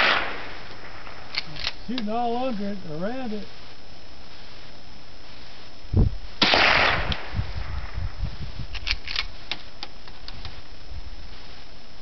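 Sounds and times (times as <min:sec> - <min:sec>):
rifle shot: 0:00.0 - 0:01.8, 0:06.4 - 0:08.0
sharp metallic clicks: 0:08.7 - 0:10.5.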